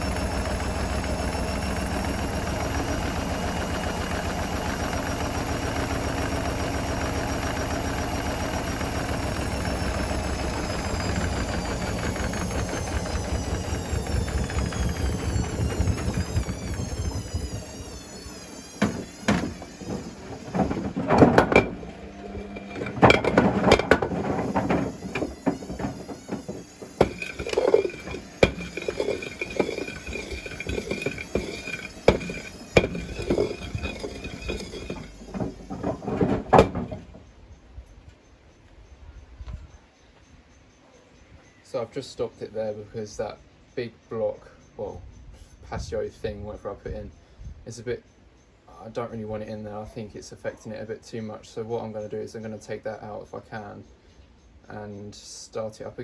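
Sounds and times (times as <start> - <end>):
washing machine motor whine: 0.0 - 37.4
bricks banging in washing machine drum: 18.8 - 37.1.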